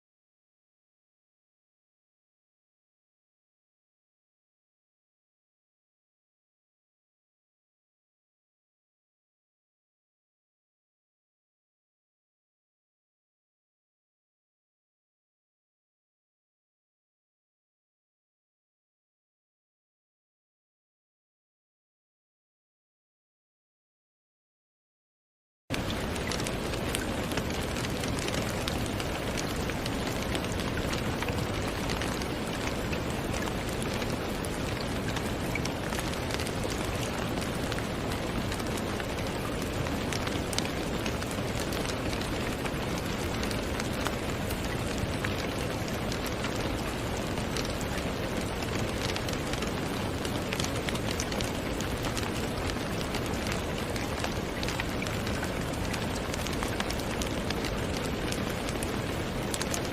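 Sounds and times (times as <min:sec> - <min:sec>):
steady rain falling: 0:25.7 - 0:59.9.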